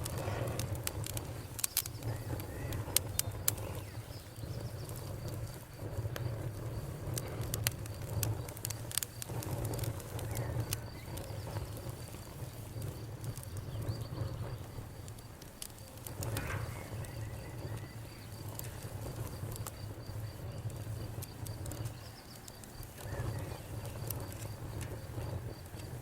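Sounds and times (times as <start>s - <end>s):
campfire crackling and popping: 0.0s - 26.0s
faint pulsing high chirp: 15.8s - 20.9s.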